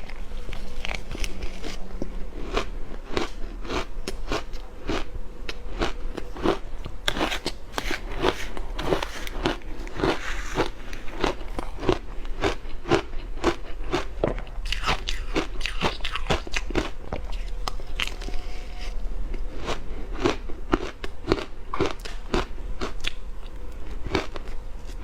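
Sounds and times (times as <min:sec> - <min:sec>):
ice being crunched: 0:07.1 - 0:12.0.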